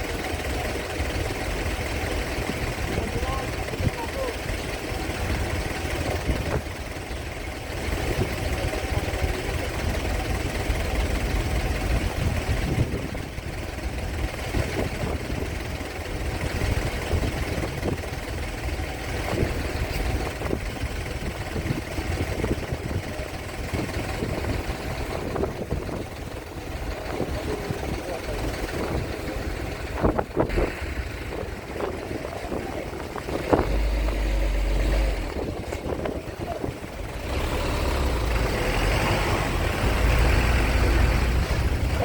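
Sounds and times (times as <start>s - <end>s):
heavy engine idling: 0.0s - 42.0s.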